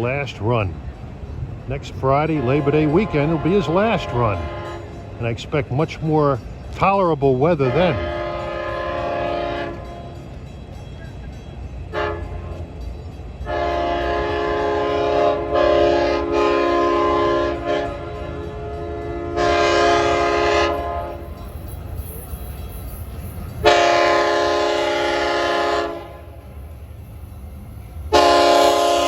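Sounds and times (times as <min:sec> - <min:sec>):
low rumble of train: 0:00.0 - 0:29.0
train air horn blasts: 0:02.4 - 0:05.0, 0:07.6 - 0:10.2, 0:11.9 - 0:12.6, 0:13.4 - 0:21.3, 0:23.6 - 0:26.4, 0:28.1 - 0:29.0.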